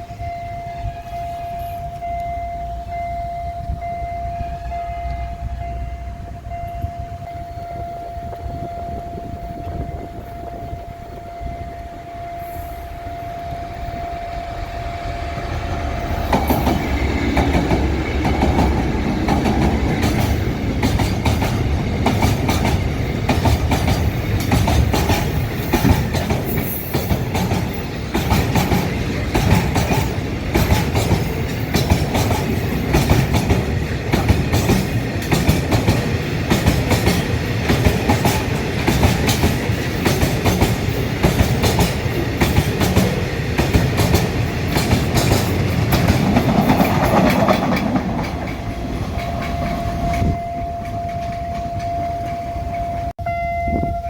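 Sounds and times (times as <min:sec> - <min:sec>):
diesel train engine rumbling: 0:00.0 - 0:54.0
steady warning tone: 0:00.0 - 0:54.0
train wheels clattering: 0:12.5 - 0:53.2.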